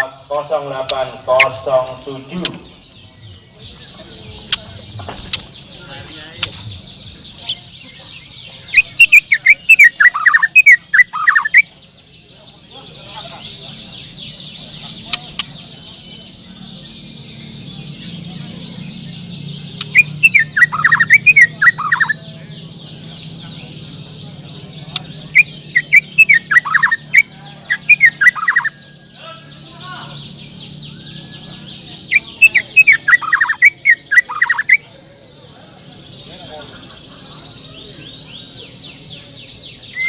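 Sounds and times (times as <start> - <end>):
birds chirping chorus: 0.0 - 40.0
bird singing whistled phrases: 19.8 - 22.2, 25.3 - 29.2, 32.1 - 34.8.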